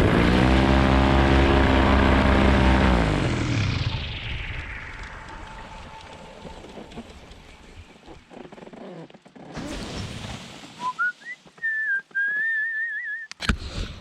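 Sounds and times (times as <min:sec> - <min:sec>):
propeller engine: 0:00.0 - 0:08.8
person whistling: 0:10.8 - 0:13.4.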